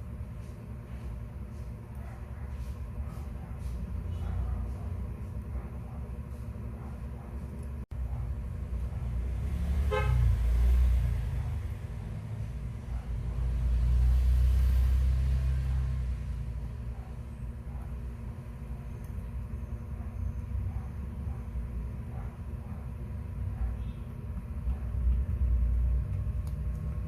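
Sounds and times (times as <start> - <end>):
road traffic rumble: 0.0 - 27.0
car horn toot: 9.9 - 10.4.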